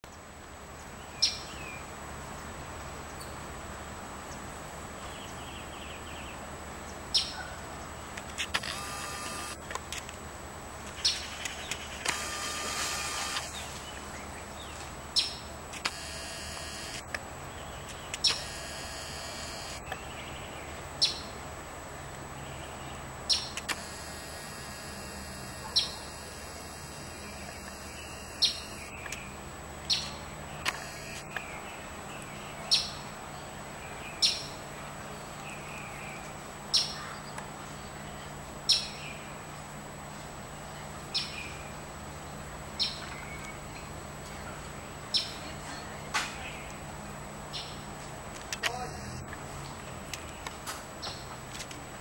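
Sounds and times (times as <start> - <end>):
outdoor background hiss: 0.0 - 52.0
buzzy bird calls: 8.5 - 9.6, 15.9 - 17.0, 23.3 - 29.1.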